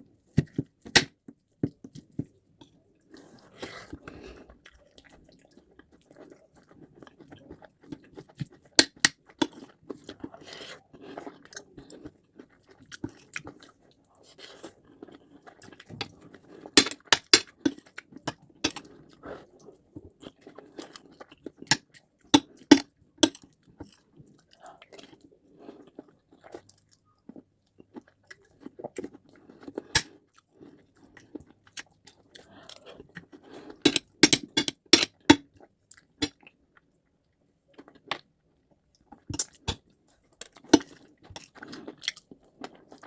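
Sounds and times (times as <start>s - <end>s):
chewing and mouth sounds: 0.2s - 37.0s.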